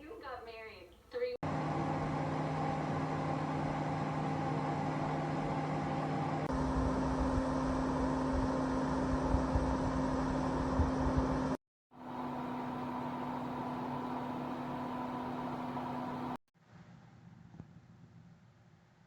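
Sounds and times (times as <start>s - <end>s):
heater fan humming: 1.4s - 16.4s.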